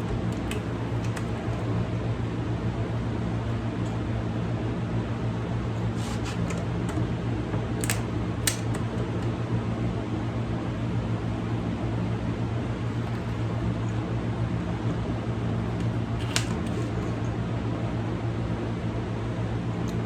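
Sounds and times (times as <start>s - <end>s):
fan humming: 0.0s - 3.6s, 5.1s - 10.0s, 12.3s - 18.0s.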